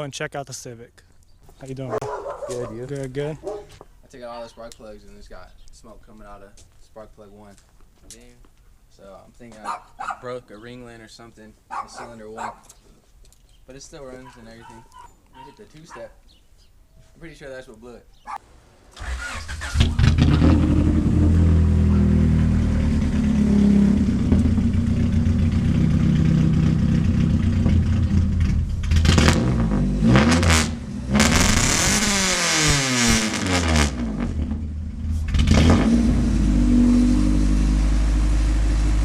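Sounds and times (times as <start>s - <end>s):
car engine starting and revving: 19.0s - 39.0s.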